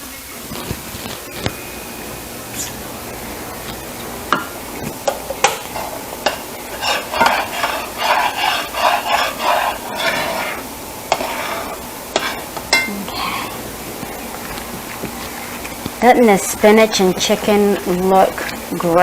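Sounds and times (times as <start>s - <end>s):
spoon scraping in a dish: 4.5s - 13.6s
spoon clinking against dish: 12.2s - 13.0s.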